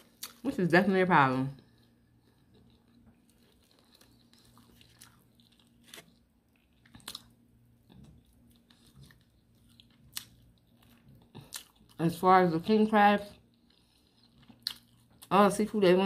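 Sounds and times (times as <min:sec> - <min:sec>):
chewing chicken: 0:01.6 - 0:12.0, 0:13.2 - 0:15.4.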